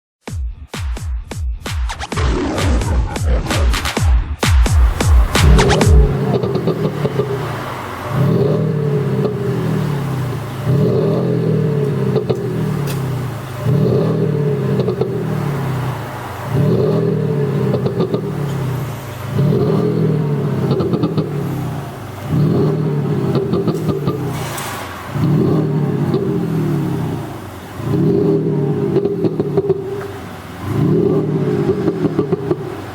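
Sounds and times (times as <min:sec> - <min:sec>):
exhaust pops and bangs: 0:01.8 - 0:07.7, 0:22.1 - 0:26.6
synthesized exhaust note revving: 0:04.6 - 0:32.9.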